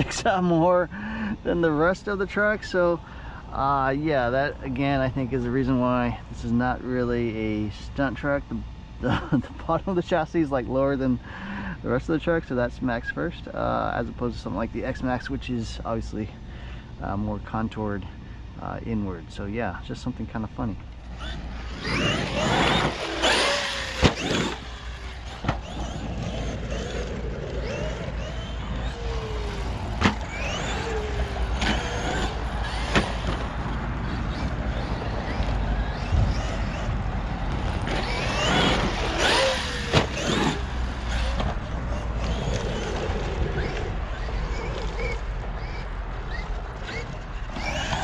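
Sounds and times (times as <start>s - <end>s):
electric motor whining: 20.9s - 48.0s
tyre noise on dirt: 21.2s - 45.3s, 46.3s - 48.0s.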